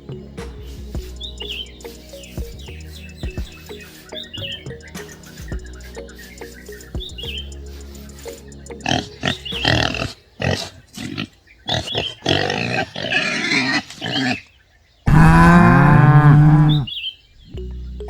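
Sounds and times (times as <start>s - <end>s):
pigs grunting and squealing: 8.8s - 14.5s, 15.1s - 16.9s
cow mooing: 15.1s - 16.9s.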